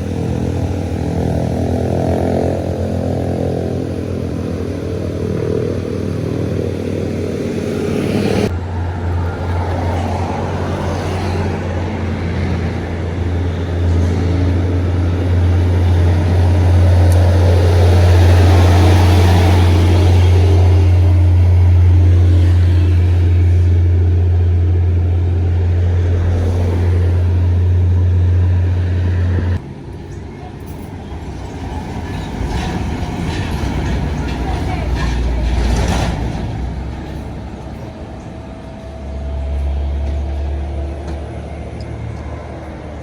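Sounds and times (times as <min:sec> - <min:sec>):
vehicle passing close by: 0:00.0 - 0:29.7
steady low rumble: 0:11.8 - 0:43.0.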